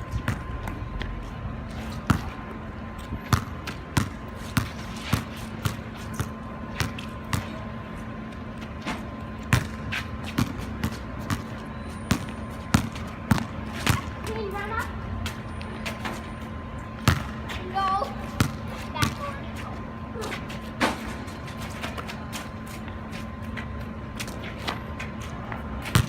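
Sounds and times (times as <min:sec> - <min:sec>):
basketball bouncing: 0:00.1 - 0:00.9, 0:02.0 - 0:02.4, 0:03.2 - 0:07.6, 0:09.5 - 0:14.4, 0:17.0 - 0:17.4, 0:18.3 - 0:19.2, 0:25.8 - 0:26.0.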